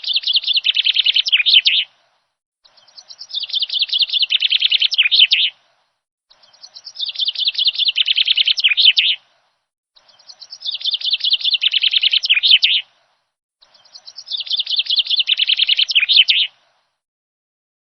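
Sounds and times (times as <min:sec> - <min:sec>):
songbird twittering: 0:00.0 - 0:01.9, 0:02.6 - 0:05.6, 0:06.3 - 0:09.2, 0:10.0 - 0:12.9, 0:13.6 - 0:16.6.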